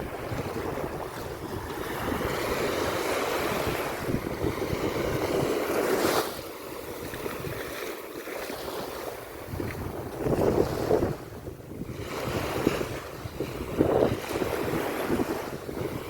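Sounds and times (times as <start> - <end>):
sea waves washing onto beach: 0.0 - 16.0
wind buffeting microphone: 0.0 - 16.0.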